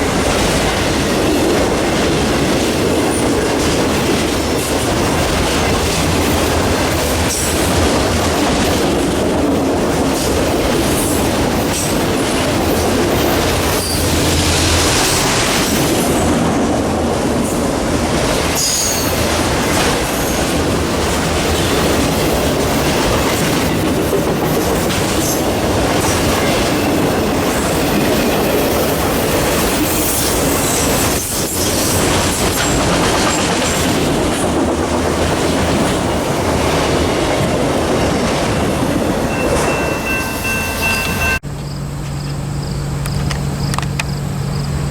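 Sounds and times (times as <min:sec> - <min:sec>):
train wheels clacking over rail joints: 0:00.0 - 0:16.4, 0:17.6 - 0:42.4
high wheel squeal: 0:39.2 - 0:43.2.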